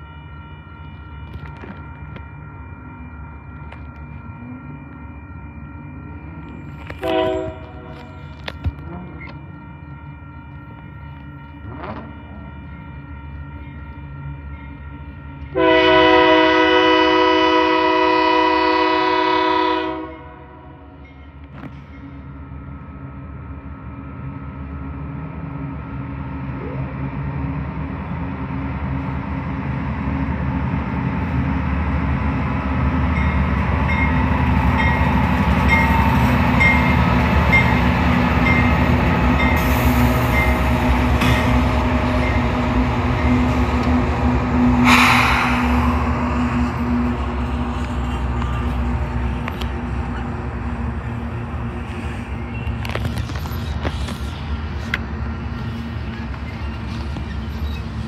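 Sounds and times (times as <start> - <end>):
crossing bell dinging: 0.0 - 17.6, 32.4 - 45.0
locomotive engine and wheels rumbling: 0.0 - 58.0
locomotive air horn blast: 7.0 - 8.1, 15.5 - 20.6, 44.8 - 47.1.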